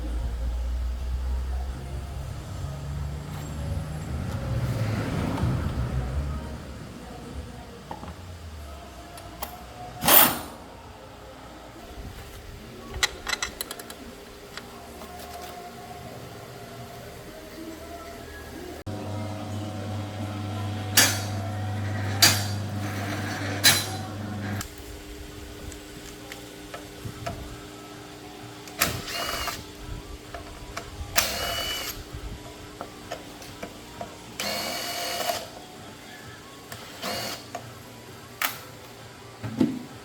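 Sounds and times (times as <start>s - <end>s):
low machine hum: 10.6s - 34.5s.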